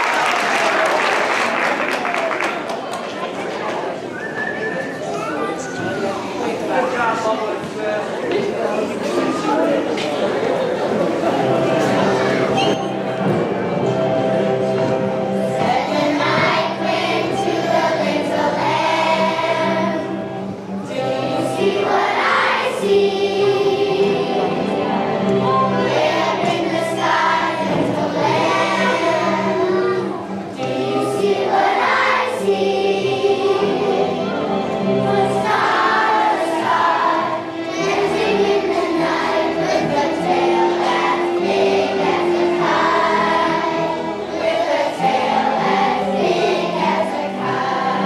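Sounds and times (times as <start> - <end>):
children's choir singing: 0.0 - 48.0
musical accompaniment: 10.5 - 48.0.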